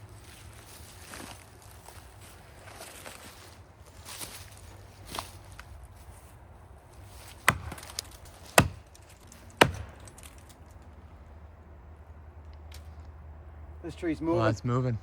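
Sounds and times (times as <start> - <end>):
axe chopping into tree trunk: 7.2 - 9.0, 9.6 - 10.4.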